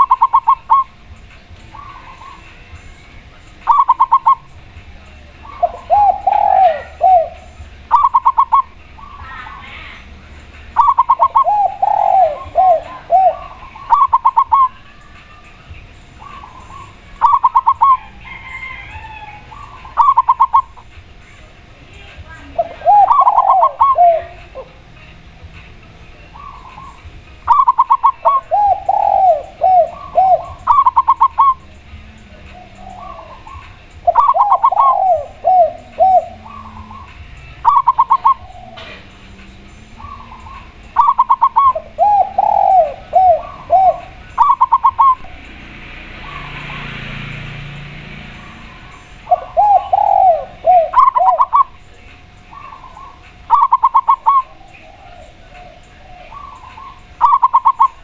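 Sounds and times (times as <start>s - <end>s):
low falling dove coos: 0.0s - 1.0s, 3.6s - 15.4s, 16.2s - 20.9s, 22.5s - 24.8s, 26.3s - 58.0s
stuttering high dove notes: 0.0s - 58.0s.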